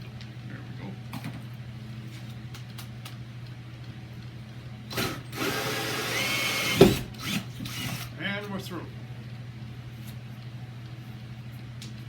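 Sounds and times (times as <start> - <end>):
power drill whine: 4.9 - 8.1.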